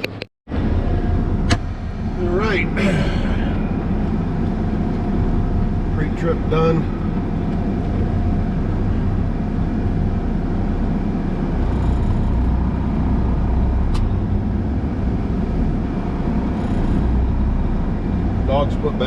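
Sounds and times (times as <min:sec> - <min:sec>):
truck engine idling: 0:00.1 - 0:19.0.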